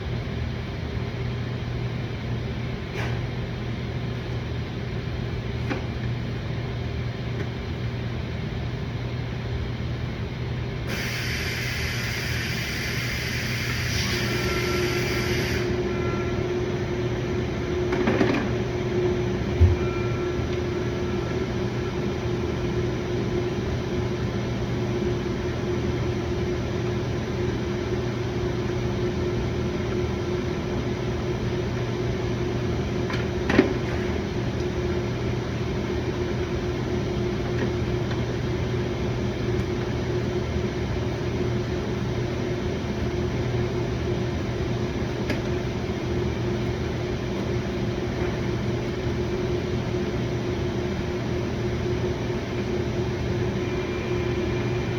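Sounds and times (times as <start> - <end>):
machine hum: 10.9 - 54.9.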